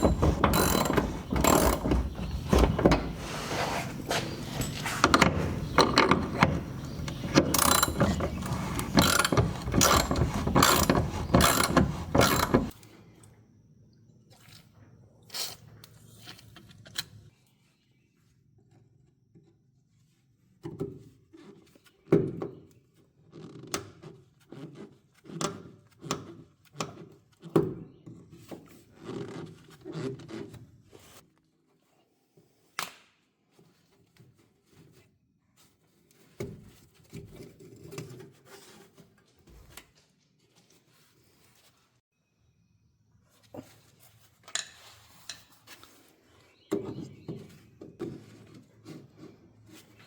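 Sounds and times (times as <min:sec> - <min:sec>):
hand tools knocking and clicking: 0:00.0 - 0:12.7.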